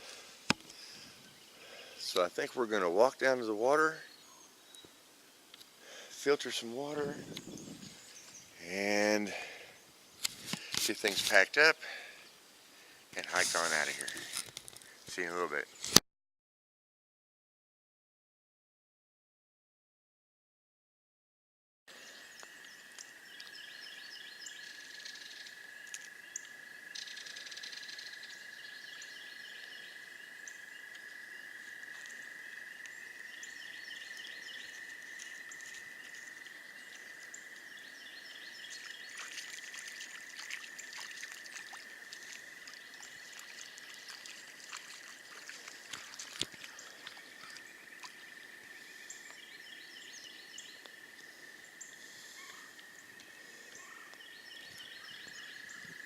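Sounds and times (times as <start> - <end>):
frogs trilling: 22.1 - 56.0.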